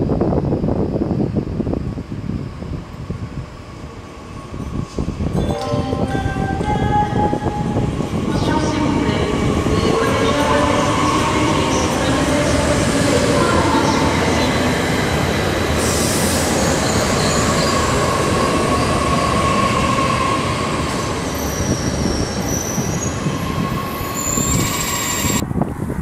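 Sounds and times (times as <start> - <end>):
high wheel squeals: 18.7 - 25.4.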